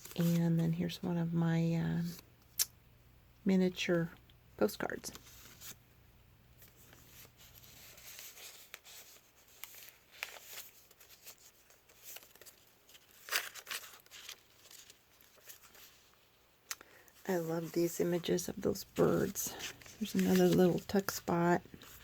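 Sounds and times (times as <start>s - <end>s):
paper rustling and crinkling: 0.0s - 0.6s, 6.6s - 16.4s, 17.2s - 22.0s.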